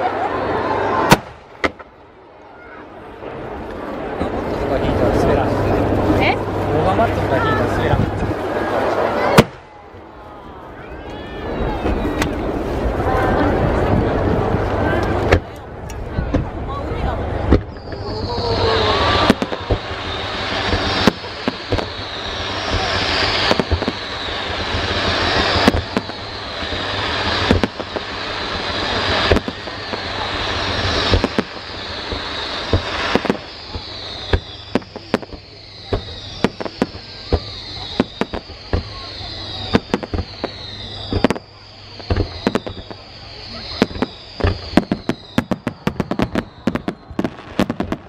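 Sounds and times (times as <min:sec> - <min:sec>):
fireworks bangs: 0:00.0 - 0:48.0
fireworks crackling hiss: 0:00.8 - 0:48.0
falling whistle tones: 0:10.4 - 0:12.5, 0:17.6 - 0:48.0.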